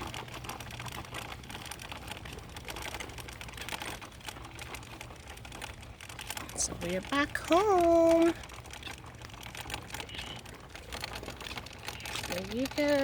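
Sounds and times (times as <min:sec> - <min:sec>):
irregular clicking and rustling: 0:00.0 - 0:13.0
low steady hum: 0:00.0 - 0:13.0.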